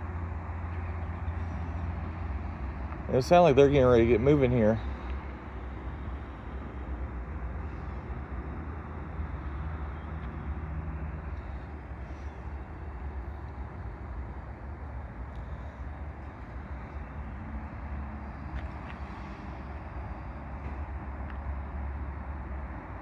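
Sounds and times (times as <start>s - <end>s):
diesel locomotives idling: 0.0s - 23.0s.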